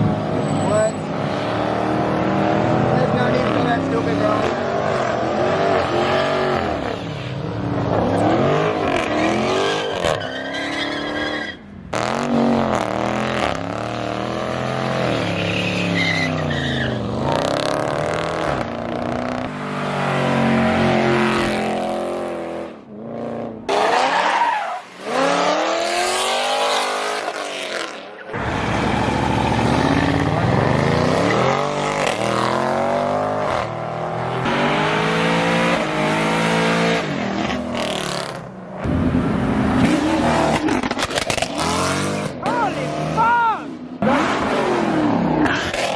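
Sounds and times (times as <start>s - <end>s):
car engines revving: 0.0s - 45.9s
tire squeal: 8.0s - 11.7s, 15.0s - 17.3s, 23.8s - 25.3s, 26.1s - 32.2s.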